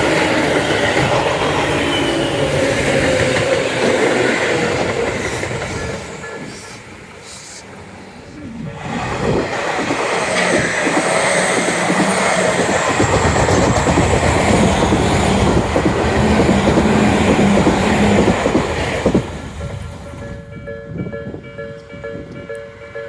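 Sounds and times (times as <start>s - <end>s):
train wheels clattering over rail joints: 0.0s - 6.7s, 8.8s - 20.5s.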